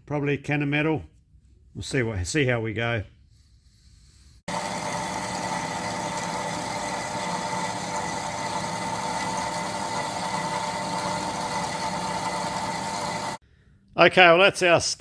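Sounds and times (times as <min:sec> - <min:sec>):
bandsaw cutting metal: 0:04.5 - 0:13.4.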